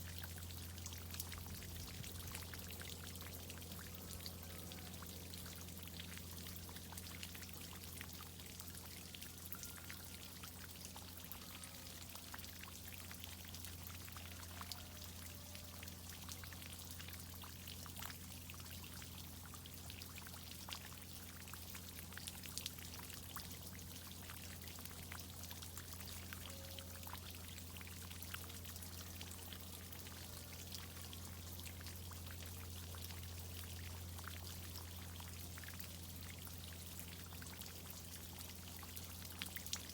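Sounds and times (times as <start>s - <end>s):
water pouring and splashing: 0.0s - 9.8s, 27.2s - 39.9s
water dripping: 0.2s - 15.1s.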